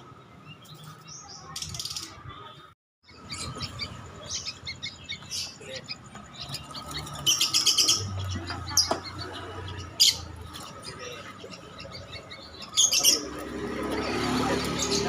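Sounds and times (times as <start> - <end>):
small bird chirping: 3.0 - 15.0.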